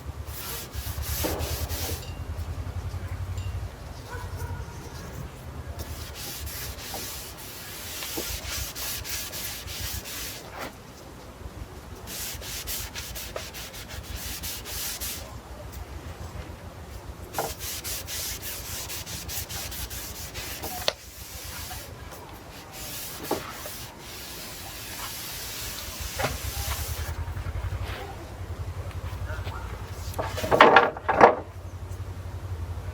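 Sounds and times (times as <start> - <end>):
brush swishing on wood: 0.3 - 2.1, 4.8 - 10.8, 12.0 - 15.3, 17.3 - 28.2.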